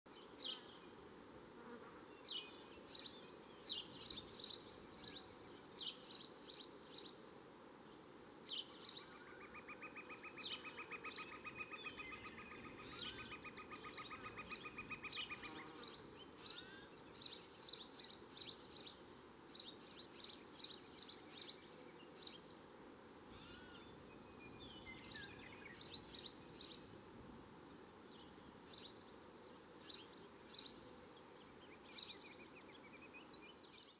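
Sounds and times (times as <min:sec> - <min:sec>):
faint steady hiss: 0:00.1 - 0:33.9.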